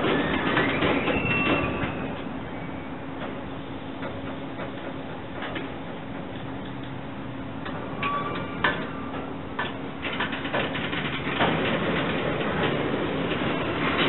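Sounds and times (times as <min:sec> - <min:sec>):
wheel squeal: 0:00.0 - 0:03.8, 0:07.9 - 0:09.3
train wheels clicking over rail joints: 0:00.0 - 0:14.0.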